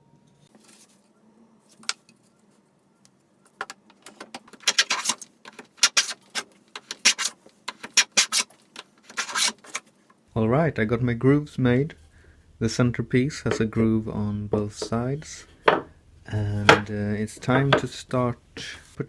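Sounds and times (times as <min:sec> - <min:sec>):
hand tool scraping wood: 0:03.6 - 0:10.1.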